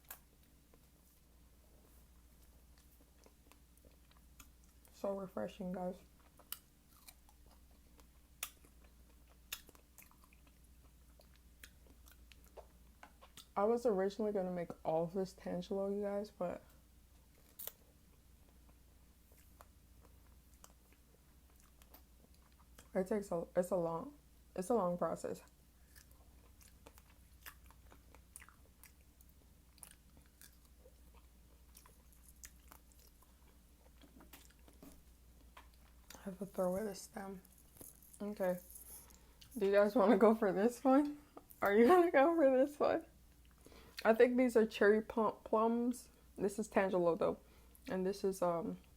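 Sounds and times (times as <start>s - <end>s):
person chewing juicy fruit: 0.0s - 5.0s, 6.0s - 13.6s, 16.7s - 23.0s, 25.4s - 40.2s.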